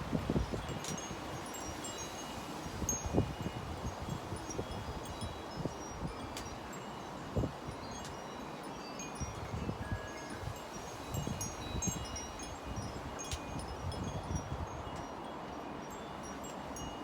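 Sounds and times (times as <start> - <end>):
wind buffeting microphone: 0.0 - 2.0, 9.2 - 15.0
wind chimes tinkling: 0.0 - 17.0.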